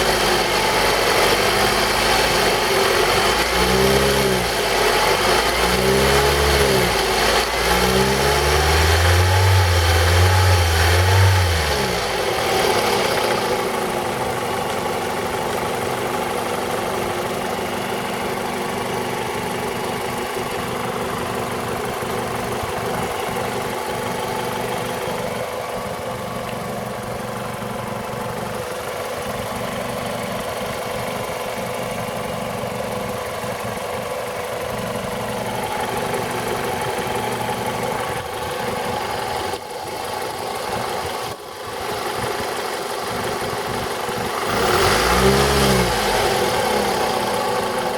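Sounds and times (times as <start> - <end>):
car engine revving and idling: 0.0 - 47.9
engine knock: 11.8 - 47.9.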